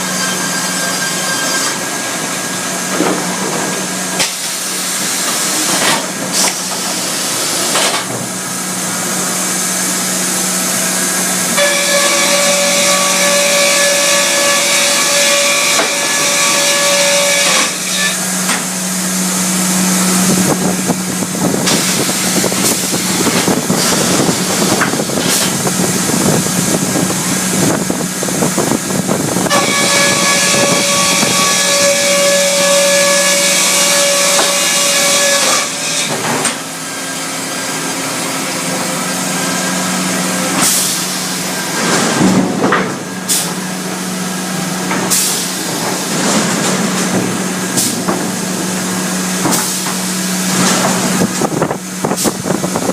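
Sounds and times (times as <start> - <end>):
sawmill machine hum: 0.0 - 52.9
band saw blade whine: 8.9 - 42.5.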